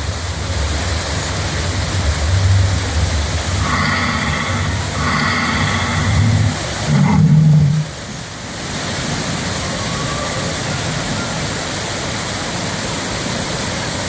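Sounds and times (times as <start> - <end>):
falling water rushing: 0.0 - 14.0
loud low rumble: 0.4 - 8.2.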